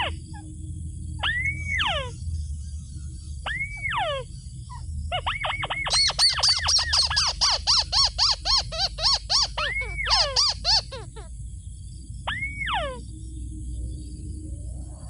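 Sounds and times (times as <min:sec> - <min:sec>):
higher-pitched bird call series: 0:01.2 - 0:02.2, 0:03.5 - 0:04.3, 0:05.2 - 0:11.3, 0:12.3 - 0:13.0
rail calling: 0:05.2 - 0:11.3.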